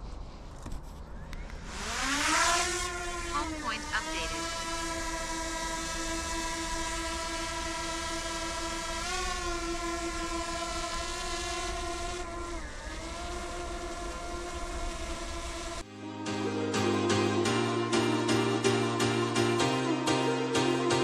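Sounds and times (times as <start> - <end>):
drone propellers whining: 1.1 - 15.9.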